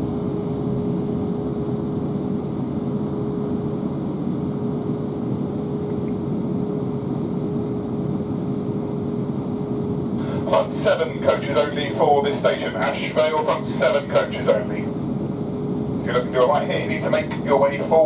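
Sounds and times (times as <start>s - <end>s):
constant single-pitch hum: 0.0s - 18.0s.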